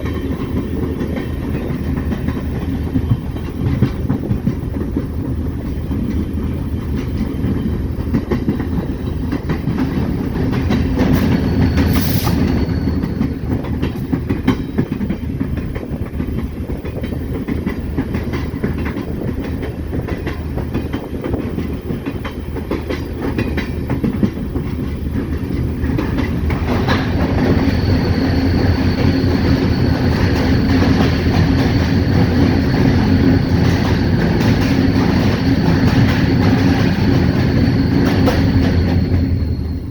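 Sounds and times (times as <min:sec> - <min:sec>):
diesel locomotive rumbling: 0:00.0 - 0:39.9
faint high whine: 0:26.8 - 0:39.9.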